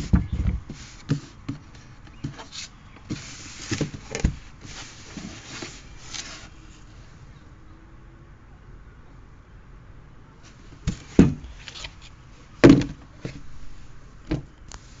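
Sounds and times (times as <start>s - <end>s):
knocks on cardboard box: 0.0s - 1.6s, 12.6s - 13.0s.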